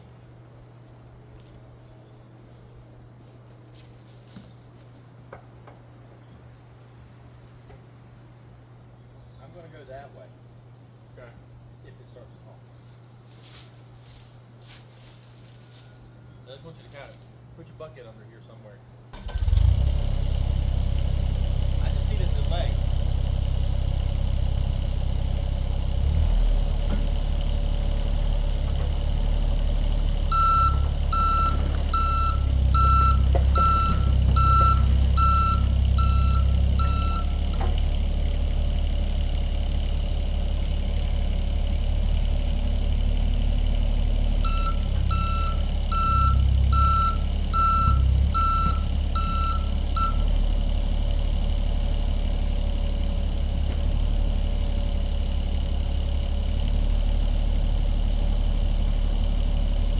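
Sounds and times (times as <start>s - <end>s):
diesel engine running: 0.0s - 5.8s, 19.1s - 59.9s
travel alarm beeping: 30.3s - 37.4s, 44.4s - 50.3s.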